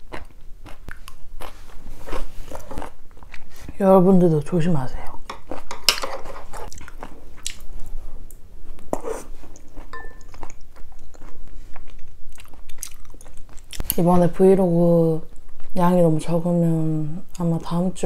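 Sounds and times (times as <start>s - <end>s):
chewing and wet mouth sounds: 0.0s - 3.7s, 6.5s - 14.0s.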